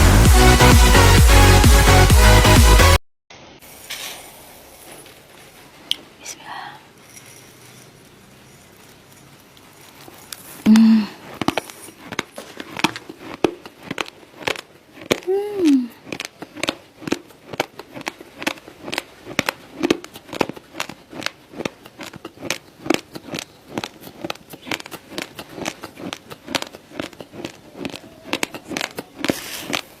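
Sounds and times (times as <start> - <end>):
raw rice being chewed: 7.0 - 30.0.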